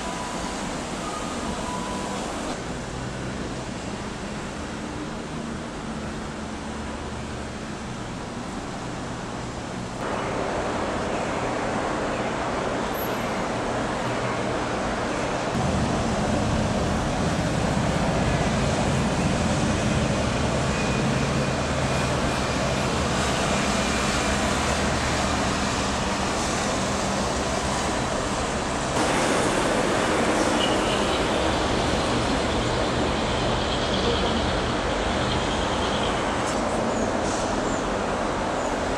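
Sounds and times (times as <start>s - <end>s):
outdoor background rumble: 15.5s - 38.6s.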